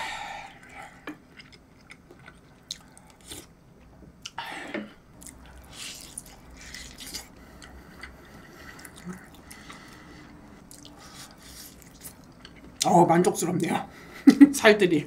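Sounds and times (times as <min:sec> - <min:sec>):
chewing and wet mouth sounds: 0:00.5 - 0:03.5, 0:05.2 - 0:12.9.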